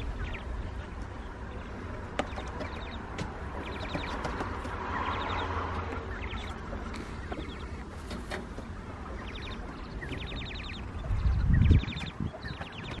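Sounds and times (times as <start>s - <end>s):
bird chirping in rapid trains: 0.0s - 13.0s
low rumble: 8.7s - 13.0s.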